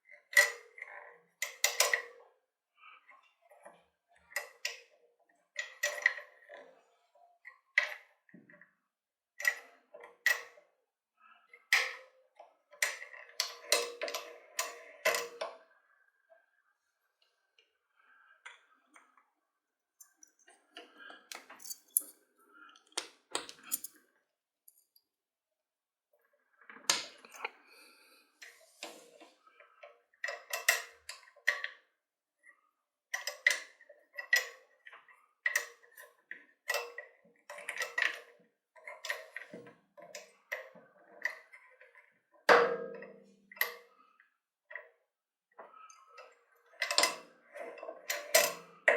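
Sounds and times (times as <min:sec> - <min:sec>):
drill parts clicking and knocking: 0:22.8 - 0:23.9.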